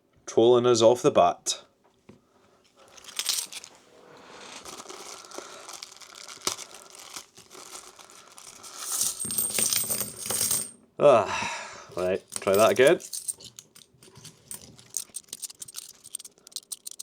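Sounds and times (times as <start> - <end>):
plastic bag crinkling and tearing: 2.9 - 9.1.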